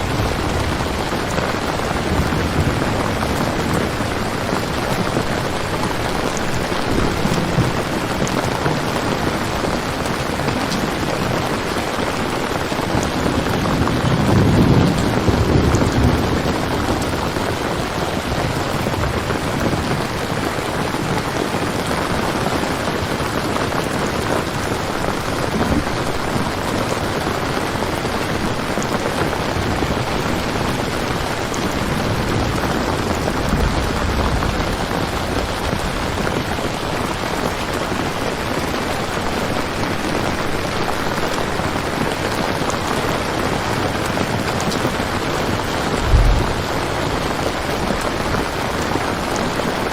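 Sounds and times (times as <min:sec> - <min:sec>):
rain falling: 0:00.0 - 0:49.9
low rumble: 0:45.9 - 0:48.0.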